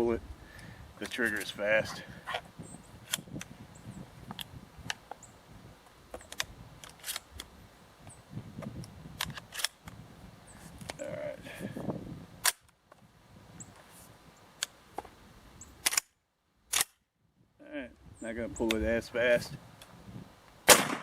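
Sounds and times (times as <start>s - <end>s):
metallic clicks of shotgun handling: 6.2s - 7.5s, 9.2s - 10.0s, 15.8s - 16.1s
loud shotgun shot: 20.6s - 21.0s.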